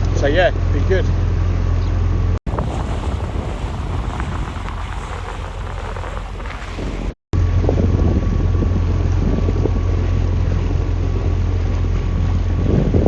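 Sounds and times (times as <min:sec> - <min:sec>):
boat engine droning: 0:02.5 - 0:07.2
wind buffeting microphone: 0:02.5 - 0:07.2.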